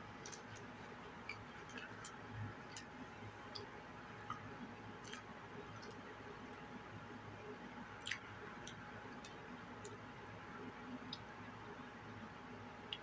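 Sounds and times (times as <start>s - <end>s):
low steady hum: 0.0s - 13.0s
closed-mouth chewing: 8.0s - 9.4s.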